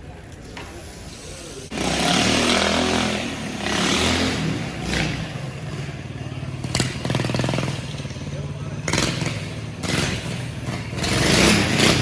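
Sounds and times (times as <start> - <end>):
motorcycle engine revving: 1.7 - 12.0.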